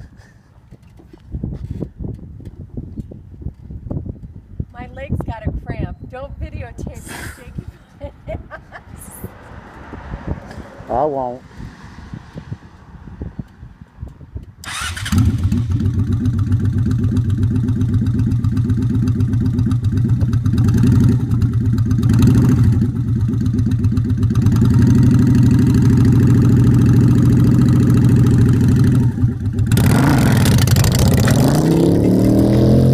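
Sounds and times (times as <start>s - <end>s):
motorcycle engine starting and revving: 13.3s - 32.9s.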